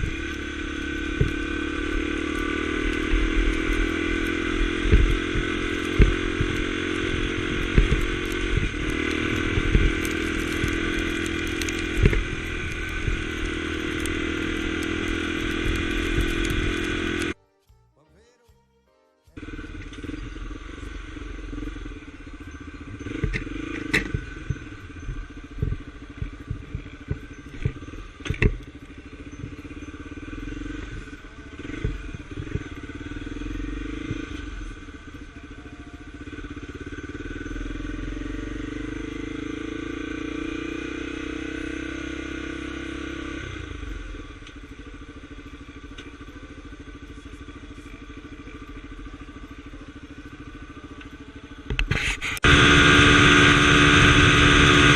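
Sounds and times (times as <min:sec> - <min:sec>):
motorcycle engine running: 0:00.0 - 0:17.4, 0:19.4 - 0:54.9
sharp knocks and clatter: 0:02.9 - 0:17.2.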